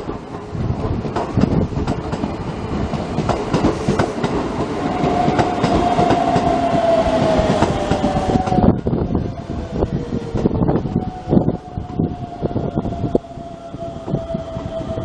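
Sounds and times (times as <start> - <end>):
electric train wheels clacking: 0.0 - 15.0
steady high tone: 4.8 - 15.0.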